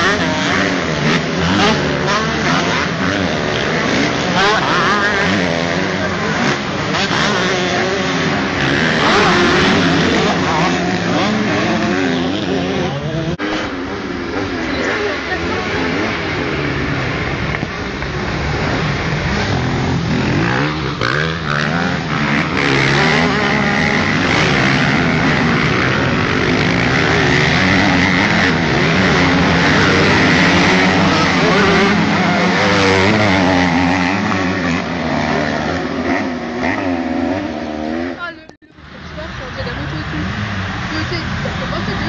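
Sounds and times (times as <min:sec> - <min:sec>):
motocross bikes racing by: 0:00.0 - 0:42.0.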